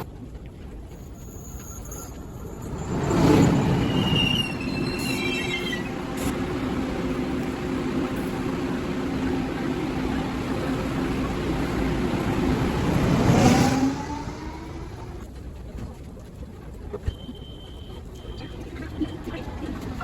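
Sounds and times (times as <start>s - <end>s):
train rumble with drone: 0.0s - 20.0s
rising whine: 1.7s - 15.4s.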